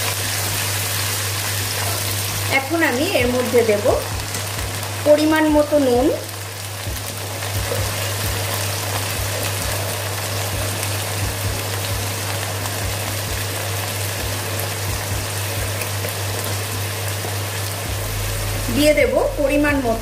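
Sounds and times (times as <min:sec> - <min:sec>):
spice paste sizzling in oil: 0:00.0 - 0:20.0.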